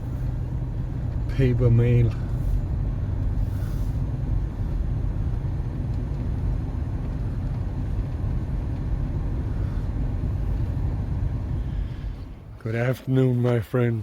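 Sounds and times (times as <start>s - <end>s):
engine and road noise rumble: 0.0s - 14.0s.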